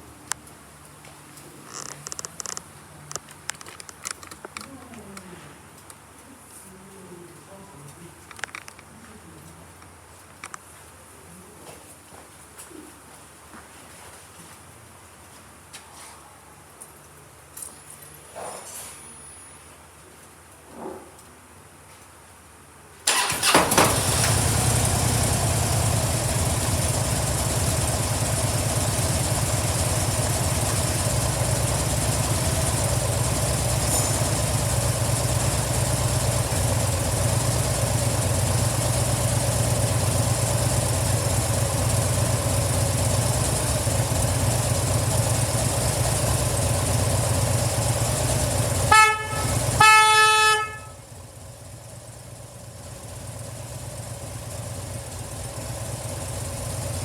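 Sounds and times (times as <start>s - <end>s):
motorcycle engine idling: 23.1s - 57.0s
motorcycle horn honking: 48.6s - 51.0s.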